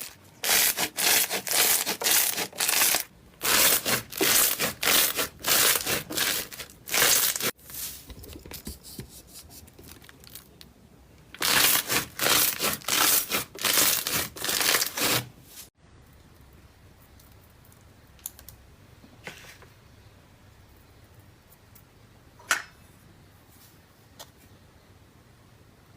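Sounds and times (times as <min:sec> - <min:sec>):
slime crackling and tearing: 0:00.4 - 0:07.5, 0:11.4 - 0:15.3.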